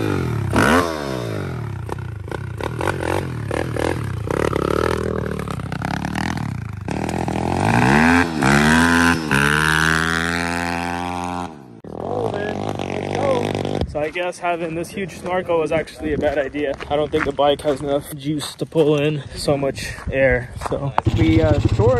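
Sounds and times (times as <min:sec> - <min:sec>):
motorbike engine revving: 0:00.0 - 0:14.0, 0:21.0 - 0:21.9.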